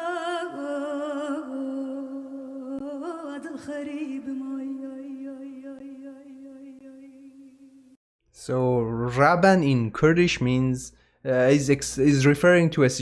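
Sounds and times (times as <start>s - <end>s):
woman singing folk song: 0.0s - 7.9s.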